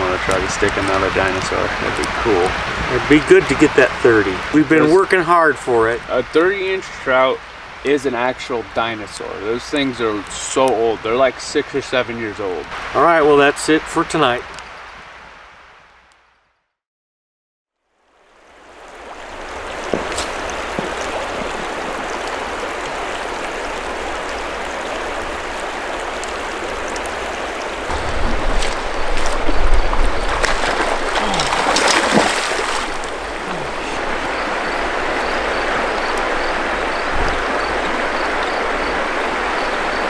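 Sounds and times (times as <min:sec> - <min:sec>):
river water rushing: 0:18.3 - 0:40.0.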